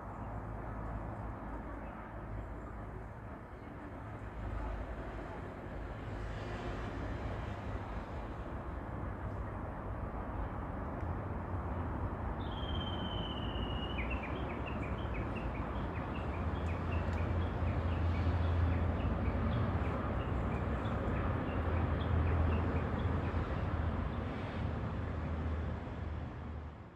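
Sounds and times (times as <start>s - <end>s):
bird whistling call: 12.4s - 14.3s.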